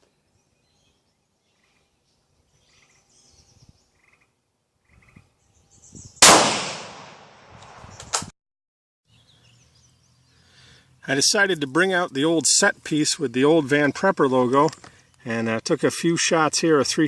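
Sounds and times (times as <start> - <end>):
rifle shot with echo: 6.2 - 7.8.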